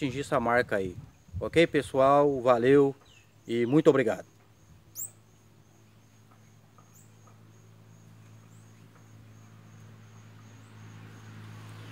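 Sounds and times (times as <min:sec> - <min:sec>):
bird chirping: 0:02.6 - 0:11.0.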